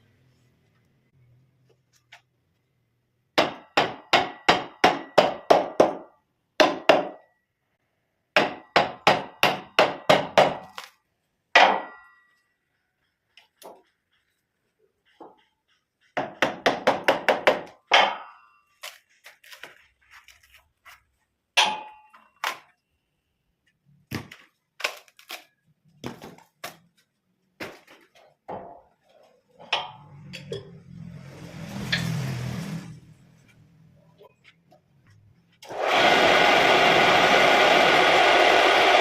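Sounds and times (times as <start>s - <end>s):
tools tapping wood: 13.0s - 18.1s.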